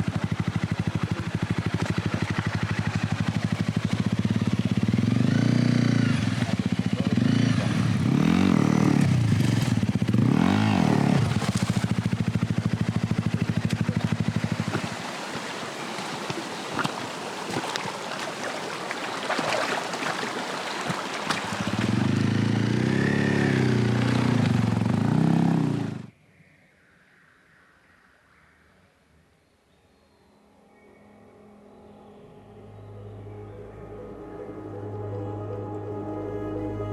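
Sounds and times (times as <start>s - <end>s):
motorcycle engine revving: 0.0s - 18.4s, 20.6s - 26.1s.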